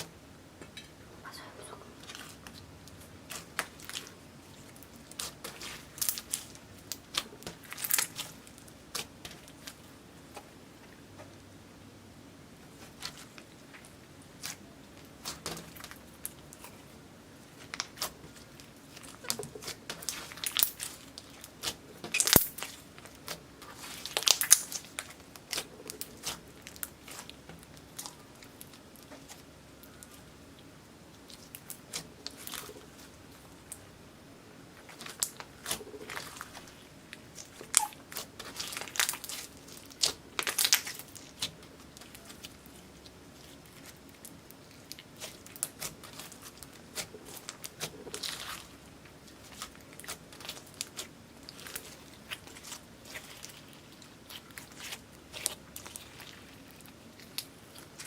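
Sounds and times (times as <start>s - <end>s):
slime crackling and popping: 2.1s - 9.8s, 17.5s - 30.2s, 34.8s - 58.0s.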